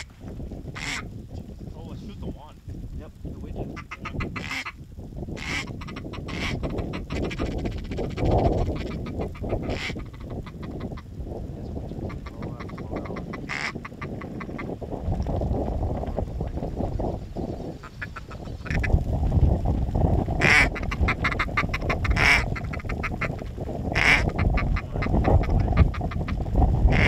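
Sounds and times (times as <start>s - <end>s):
wind rumble on microphone: 0.0s - 27.0s
duck quacking: 0.8s - 1.0s, 3.7s - 4.8s, 5.4s - 8.0s, 8.6s - 10.9s, 12.1s - 14.7s, 20.4s - 27.0s.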